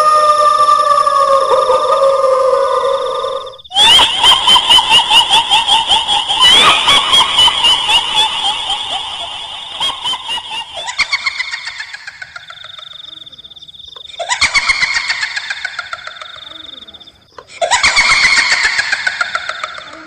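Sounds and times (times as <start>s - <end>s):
long held wail: 0.0s - 10.8s
shrill cackling ghost laugh: 0.0s - 13.3s, 14.0s - 20.0s.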